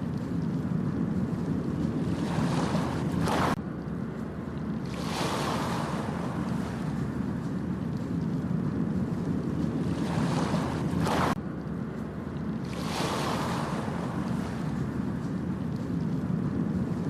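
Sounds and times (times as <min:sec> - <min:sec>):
ocean waves washing onto beach: 0:00.0 - 0:17.0
wind buffeting microphone: 0:00.0 - 0:17.0.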